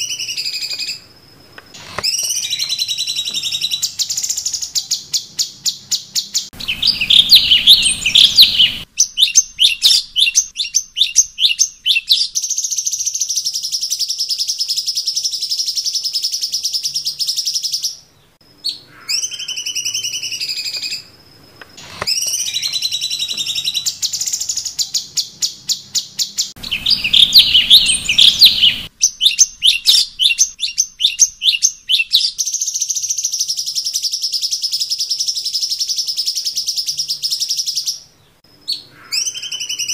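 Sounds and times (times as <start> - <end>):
sliding whistled bird notes: 1.7 - 13.1, 21.8 - 33.2
songbird trilling and chattering: 1.8 - 21.1, 21.8 - 38.0.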